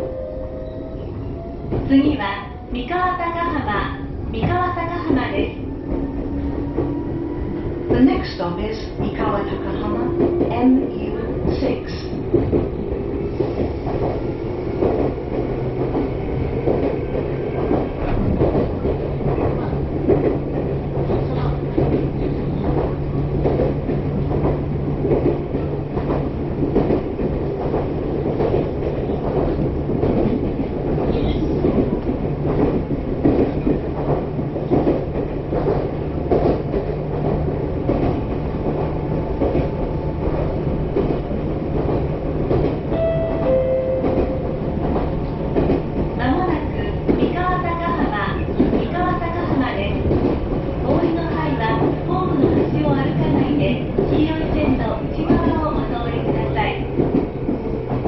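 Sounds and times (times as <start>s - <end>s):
train wheels rumbling on rails: 0.7s - 58.0s
track clicks and knocks: 8.9s - 58.0s.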